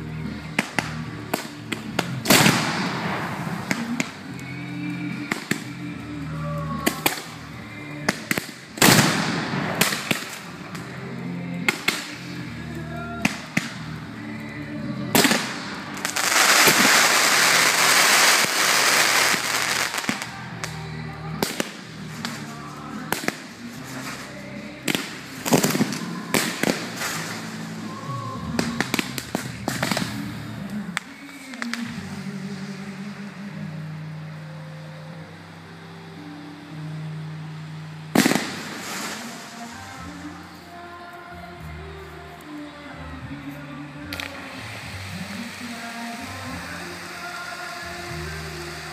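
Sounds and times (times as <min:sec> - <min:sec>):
firework crackling: 0:00.0 - 0:34.4, 0:37.6 - 0:48.9
background music: 0:00.0 - 0:48.9
firework bangs: 0:00.4 - 0:04.5, 0:05.1 - 0:05.9, 0:06.8 - 0:11.0, 0:11.6 - 0:12.5, 0:13.2 - 0:14.0, 0:15.1 - 0:20.8, 0:21.4 - 0:32.9, 0:38.1 - 0:40.4, 0:44.0 - 0:48.9.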